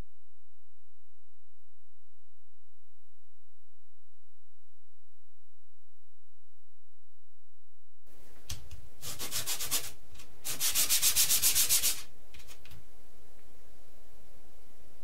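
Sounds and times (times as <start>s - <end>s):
hand sanding strokes: 9.0s - 12.1s.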